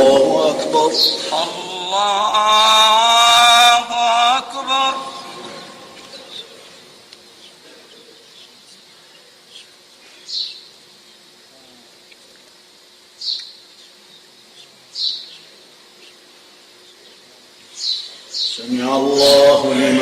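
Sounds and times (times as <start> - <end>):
small birds chirping: 0.0 - 1.7, 5.0 - 19.6
faint steady hum: 0.0 - 20.0.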